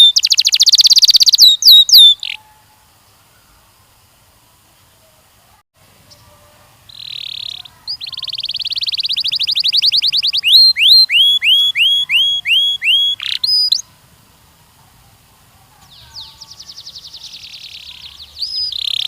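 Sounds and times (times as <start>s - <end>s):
canary singing: 0.0s - 2.8s, 6.1s - 14.0s, 15.8s - 19.0s.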